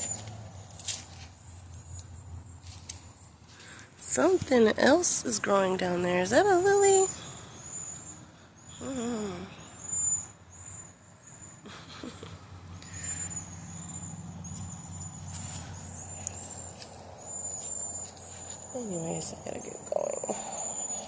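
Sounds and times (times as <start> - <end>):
birds whistling high notes: 6.9 - 11.6, 12.8 - 18.2.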